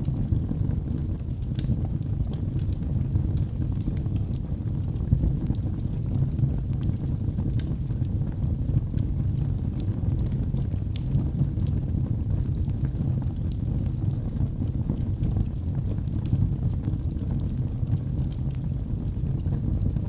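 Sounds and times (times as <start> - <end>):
low rumble of flames: 0.0 - 20.0
wood crackling and popping: 0.0 - 20.0.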